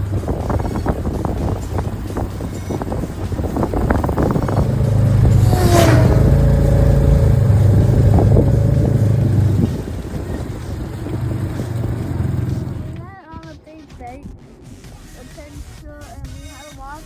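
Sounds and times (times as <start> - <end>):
off-road vehicle engine running: 0.0 - 13.1.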